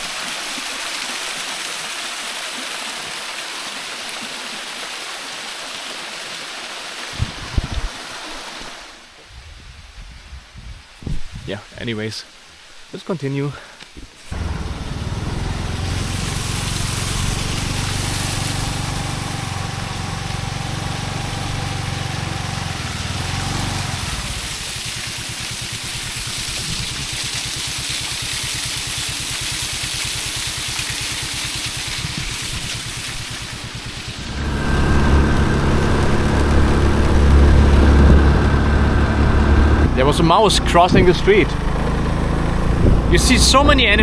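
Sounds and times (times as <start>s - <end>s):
airflow hiss: 13.5s - 22.3s
motorcycle engine running: 14.4s - 44.0s.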